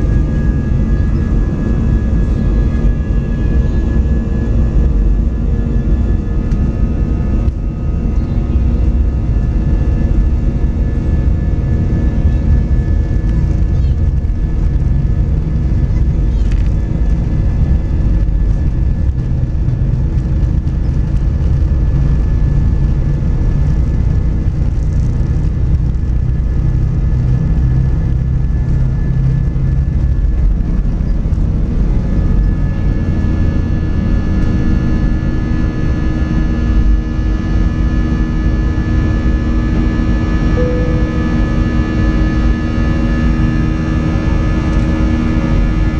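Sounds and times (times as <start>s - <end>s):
airplane cabin rumble: 0.0s - 45.9s
jet engine whining tones: 27.5s - 45.9s.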